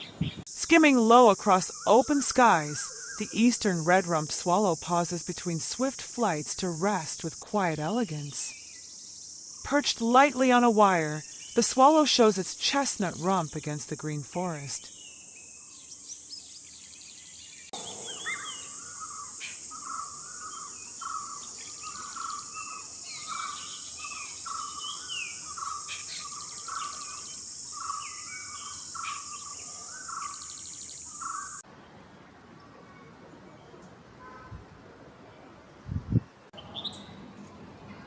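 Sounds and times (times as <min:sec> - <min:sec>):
birds chirping: 0:00.0 - 0:31.6
high-pitched insect drone: 0:17.8 - 0:23.6.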